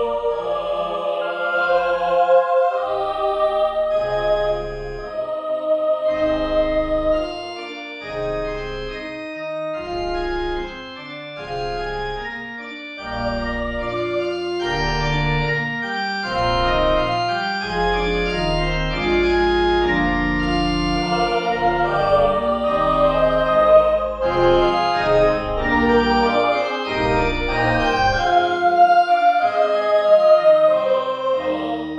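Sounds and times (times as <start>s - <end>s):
organ playing slow chords: 0.0s - 31.9s.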